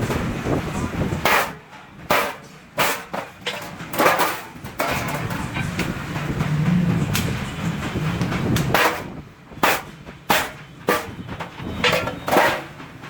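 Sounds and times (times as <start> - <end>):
sharp metal knocks: 1.2 - 12.9
low steady rumble: 4.7 - 9.6.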